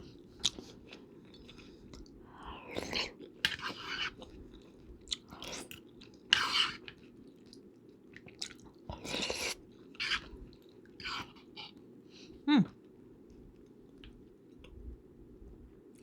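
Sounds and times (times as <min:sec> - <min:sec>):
person chewing food: 0:00.0 - 0:11.9
low background hum: 0:00.0 - 0:16.0.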